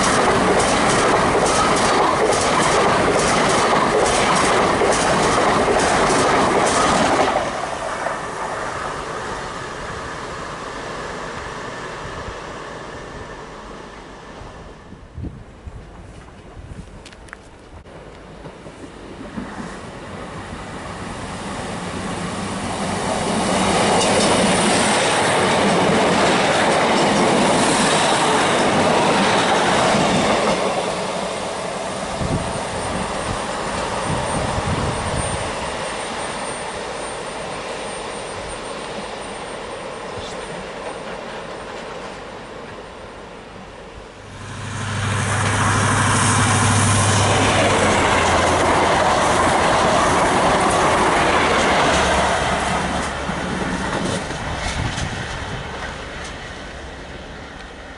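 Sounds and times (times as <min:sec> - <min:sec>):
train wheels on rails: 0:00.0 - 0:57.9
diesel engine drone: 0:44.2 - 0:48.6.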